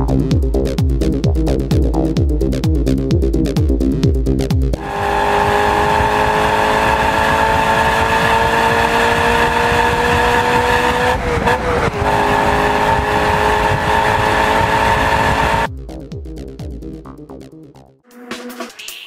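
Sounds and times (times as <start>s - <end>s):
car engine revving high: 4.8s - 15.7s.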